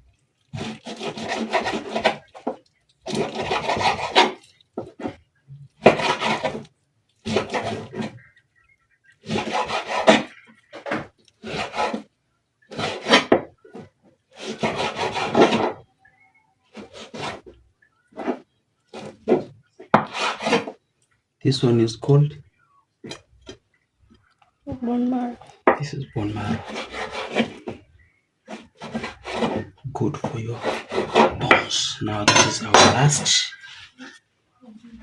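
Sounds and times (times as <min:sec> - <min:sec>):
knife sawing through meat: 0:00.5 - 0:02.3, 0:03.1 - 0:04.5, 0:09.2 - 0:10.3, 0:11.4 - 0:12.0, 0:14.4 - 0:15.7.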